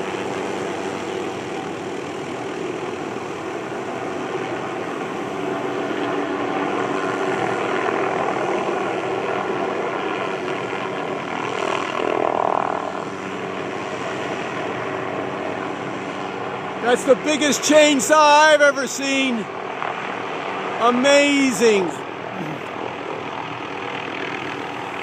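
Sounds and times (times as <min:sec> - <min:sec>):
helicopter rotor and engine: 0:00.0 - 0:25.0.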